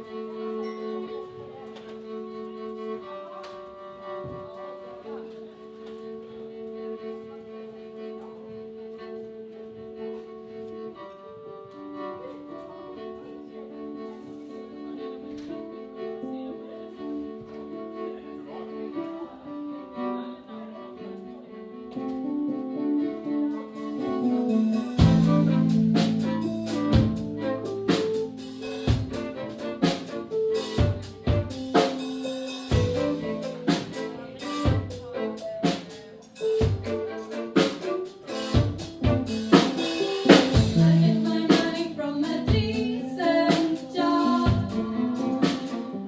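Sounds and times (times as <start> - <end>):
slow melody of held notes: 21.5 - 29.4, 39.0 - 45.4
band playing live: 23.8 - 46.0
drums: 23.9 - 46.0.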